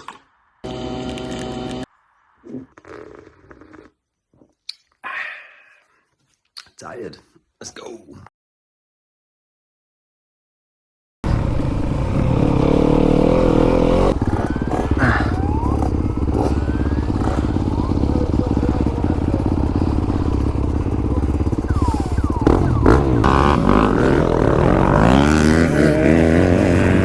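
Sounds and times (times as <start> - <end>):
dirt bike engine revving: 0.6 - 1.9, 11.2 - 27.0.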